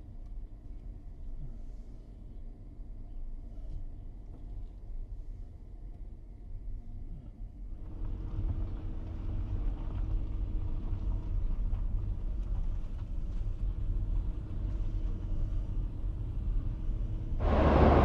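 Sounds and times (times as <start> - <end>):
road vehicle engine and tyre rumble: 7.8 - 18.0.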